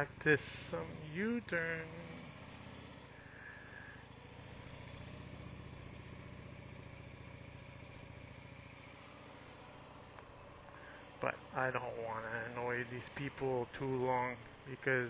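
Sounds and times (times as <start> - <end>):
motorcycle engine low rumble: 0.0 - 15.0.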